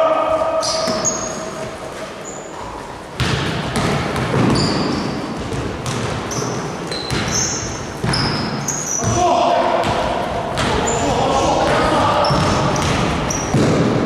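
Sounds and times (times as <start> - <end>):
sneakers squeaking: 0.3 - 14.0
ball bouncing on court: 3.2 - 14.0
background voices: 9.1 - 13.2.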